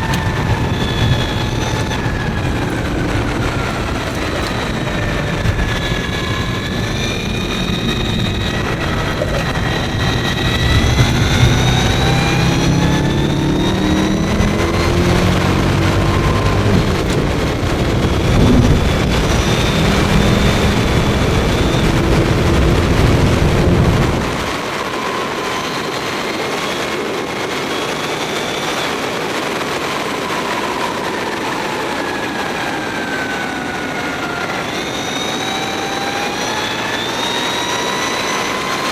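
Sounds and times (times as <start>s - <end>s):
heavy low rumble: 0.0s - 24.6s
electric motor whine: 0.0s - 32.2s
wind rush: 0.0s - 34.9s.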